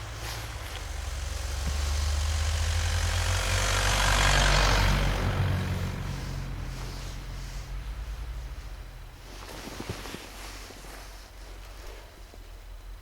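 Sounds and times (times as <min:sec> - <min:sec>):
engine running at low revs: 0:00.0 - 0:09.9
broad hiss: 0:00.0 - 0:11.4.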